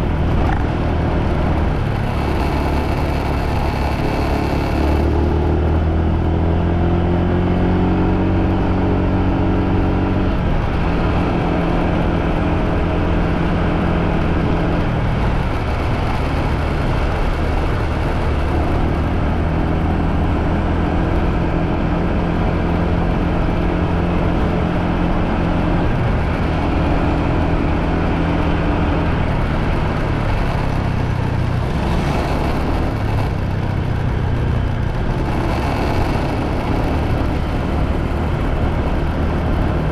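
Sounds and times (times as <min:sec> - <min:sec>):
motorbike engine running: 0:00.0 - 0:39.9
rush of noise: 0:00.0 - 0:39.9.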